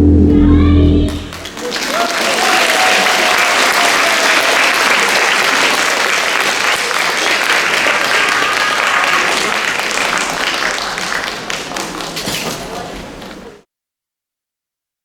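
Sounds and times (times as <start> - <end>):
audience applauding: 1.1 - 13.6
faint voices: 8.8 - 13.6.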